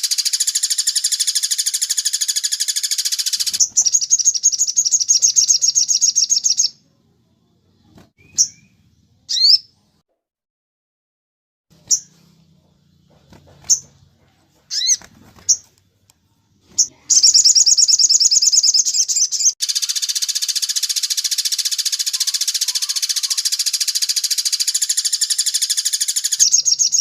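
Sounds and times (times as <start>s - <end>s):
bird chirping and trilling: 0.0s - 6.8s, 7.7s - 9.8s, 11.8s - 12.2s, 13.6s - 14.0s, 14.7s - 15.7s, 16.6s - 27.0s.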